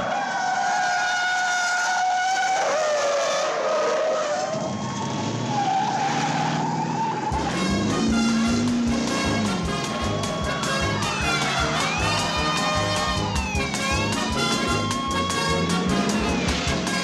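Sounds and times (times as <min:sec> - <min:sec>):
car tyres squealing: 0:00.0 - 0:17.0
car engine running hard: 0:02.6 - 0:17.0
fast rhythmic music: 0:07.3 - 0:17.0.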